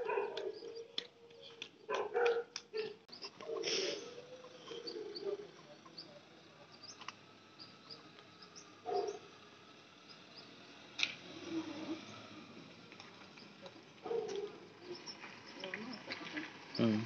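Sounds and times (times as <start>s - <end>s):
high bird chirps: 14.8s - 16.1s.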